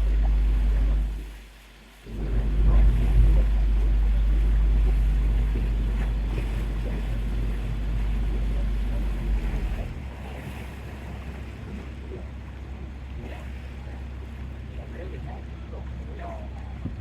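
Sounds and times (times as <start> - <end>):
ferry engine rumble: 0.0 - 17.0
wind buffeting microphone: 2.0 - 13.2.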